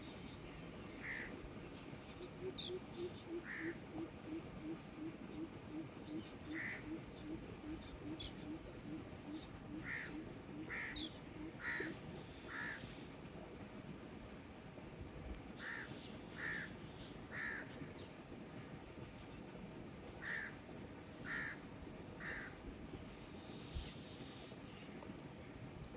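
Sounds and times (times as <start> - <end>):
bird calling: 2.2 - 12.8.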